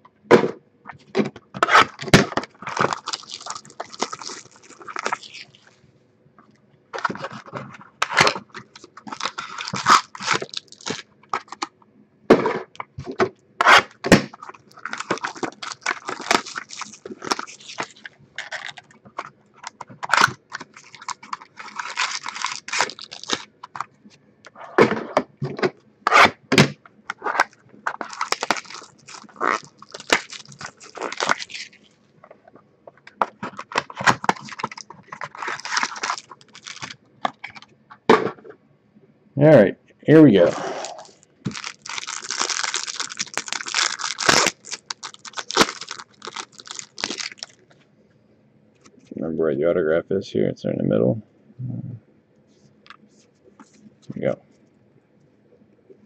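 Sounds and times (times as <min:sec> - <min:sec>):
wrappers crinkling and tearing: 0:01.6 - 0:05.8, 0:07.0 - 0:11.7, 0:13.6 - 0:23.9, 0:27.1 - 0:31.9, 0:33.2 - 0:37.6, 0:40.4 - 0:47.6.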